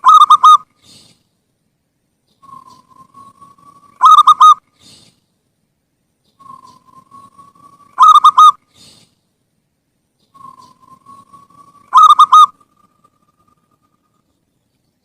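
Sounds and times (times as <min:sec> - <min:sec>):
dove cooing: 0:00.0 - 0:00.7, 0:02.4 - 0:04.6, 0:06.4 - 0:08.9, 0:10.3 - 0:13.0.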